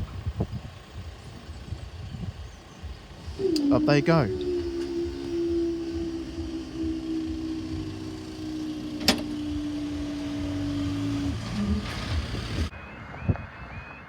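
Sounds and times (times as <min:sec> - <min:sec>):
electric motor hum: 0:03.1 - 0:12.7.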